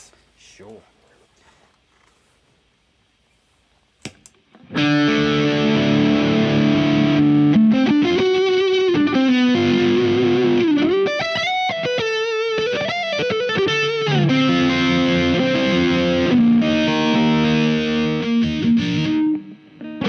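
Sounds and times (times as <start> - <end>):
distorted electric guitar: 4.6 - 20.0.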